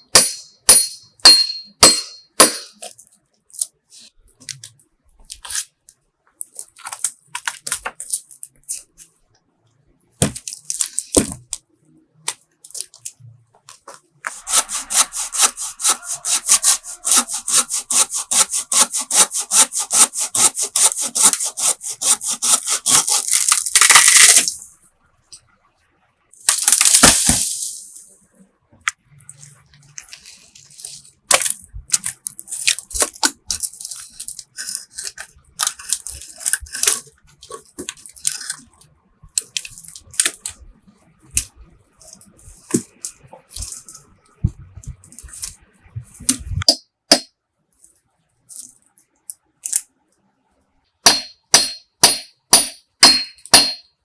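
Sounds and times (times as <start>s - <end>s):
wood being handled: 13.8s - 24.5s
hand saw cutting wood: 14.3s - 23.7s.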